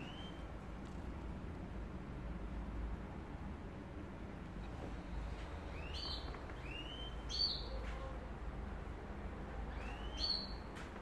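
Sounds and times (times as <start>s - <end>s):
bird whistling call: 0.0s - 0.4s, 5.8s - 7.7s, 9.8s - 10.6s.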